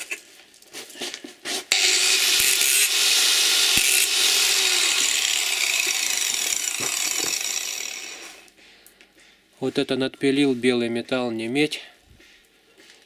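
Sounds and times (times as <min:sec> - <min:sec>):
power tool grinding metal: 0:01.7 - 0:08.5.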